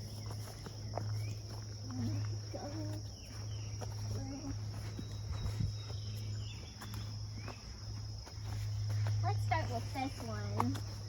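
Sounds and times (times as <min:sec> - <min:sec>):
footstep clicks: 0:00.0 - 0:11.0
high insect drone: 0:00.0 - 0:11.0.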